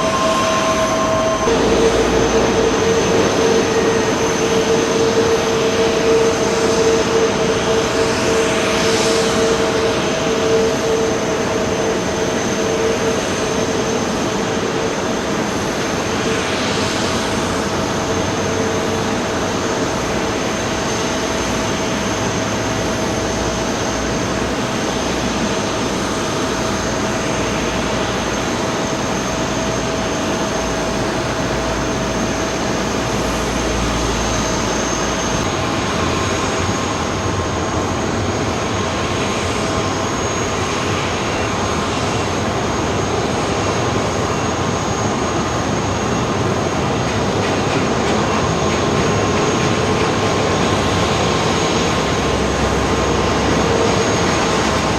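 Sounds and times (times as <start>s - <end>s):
whining tone: 0.0s - 35.5s
jet engines running: 0.0s - 54.9s.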